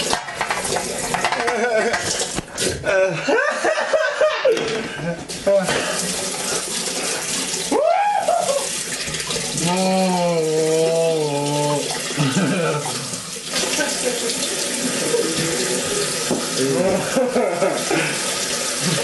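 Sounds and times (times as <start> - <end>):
tap water running into sink: 0.0 - 2.8, 4.5 - 19.0
person crying out: 2.8 - 3.2, 7.7 - 8.7, 9.6 - 13.1
person moaning: 2.8 - 3.2, 9.6 - 13.1.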